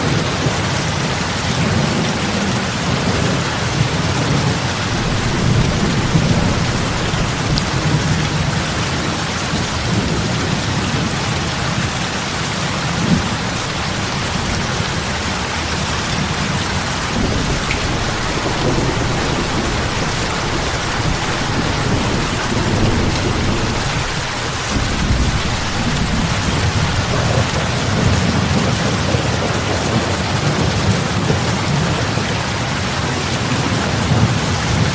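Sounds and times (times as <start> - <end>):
heavy rain splashing on water: 0.0 - 34.9
low rumble: 4.5 - 10.0, 12.9 - 28.2.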